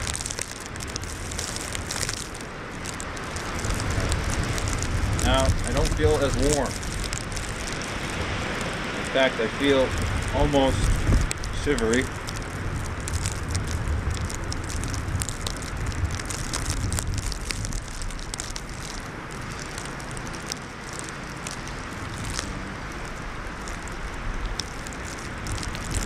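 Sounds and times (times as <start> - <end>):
light crackle of ticks: 0.0 - 26.0
wind blowing across microphone: 0.0 - 26.0.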